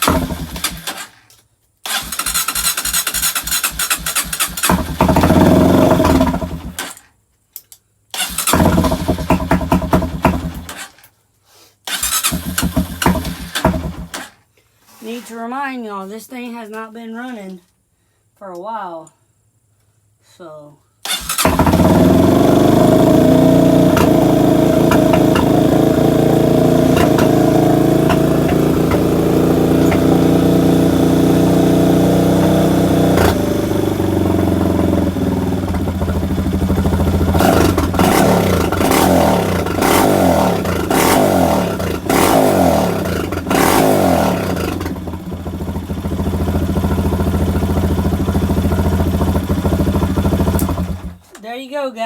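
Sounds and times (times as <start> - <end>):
dirt bike engine revving and idling: 0.0 - 1.2, 1.8 - 7.0, 8.2 - 11.0, 11.9 - 14.4, 21.1 - 51.3.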